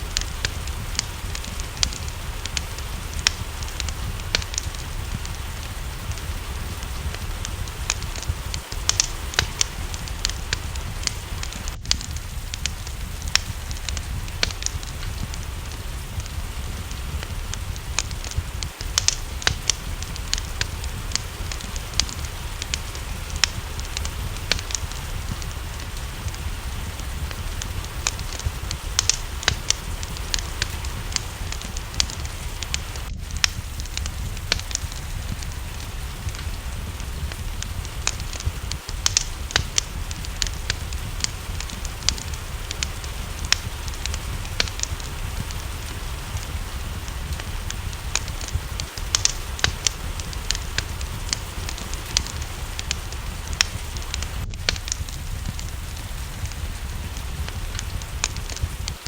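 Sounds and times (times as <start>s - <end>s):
rain hiss: 0.0s - 59.0s
wood fire crackling: 0.0s - 59.0s.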